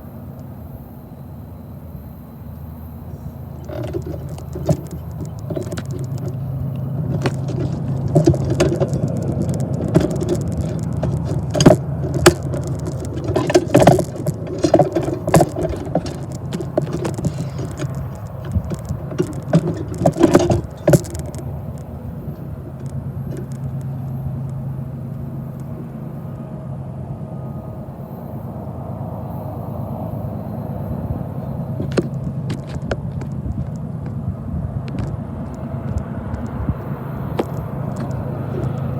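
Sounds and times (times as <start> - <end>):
freight train cars rolling: 0.0 - 38.9
metallic clanks and wheel clicks: 3.1 - 26.0, 31.2 - 38.9.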